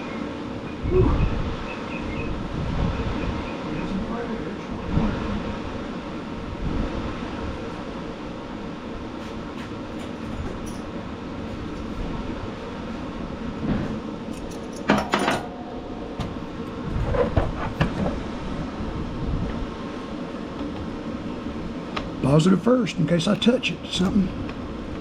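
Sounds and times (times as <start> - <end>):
fan running steadily: 0.0 - 25.0
metal clinks of bolts and tools: 10.0 - 10.9, 14.3 - 15.6.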